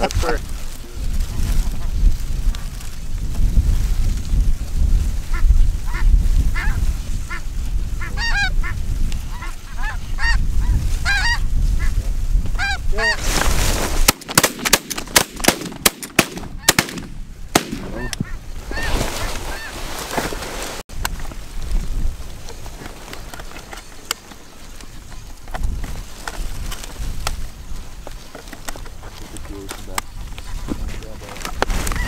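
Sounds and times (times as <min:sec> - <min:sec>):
wind on microphone: 0:00.0 - 0:14.1, 0:16.2 - 0:24.0, 0:24.6 - 0:32.0
geese honking: 0:05.3 - 0:12.0, 0:12.6 - 0:13.3, 0:17.8 - 0:19.9
shotgun shots: 0:14.0 - 0:18.0.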